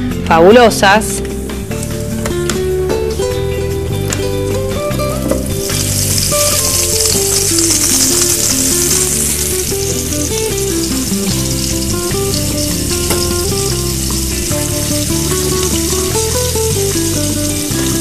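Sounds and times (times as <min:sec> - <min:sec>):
background music: 0:00.0 - 0:18.0
meatballs sizzling in oil: 0:01.4 - 0:18.0.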